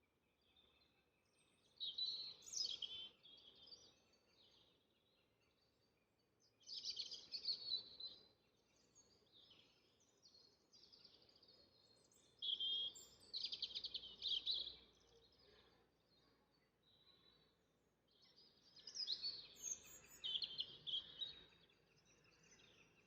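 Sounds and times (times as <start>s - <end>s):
songbirds trilling: 6.7s - 23.0s.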